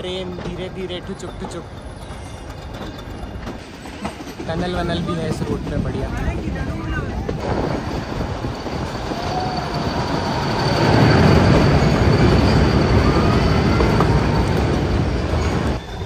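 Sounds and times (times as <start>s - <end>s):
train rumble echoing in tunnel: 0.0s - 16.0s
high wheel squeal: 0.2s - 5.6s, 6.5s - 16.0s.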